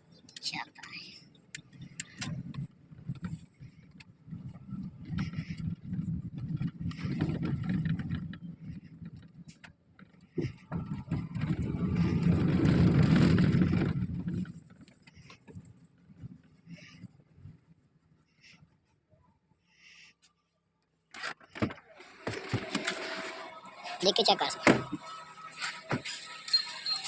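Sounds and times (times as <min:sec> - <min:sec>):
car engine rumbling: 0:00.0 - 0:18.4, 0:22.1 - 0:27.0.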